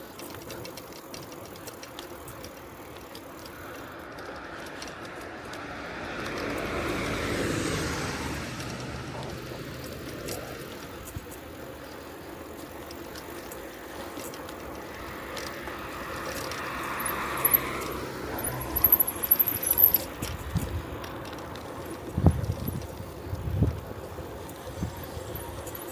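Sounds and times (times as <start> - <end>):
bicycle tyre and wind noise: 0.0 - 25.9
motor vehicle passing: 0.2 - 25.9
sharp high-pitched ticks: 8.6 - 25.9.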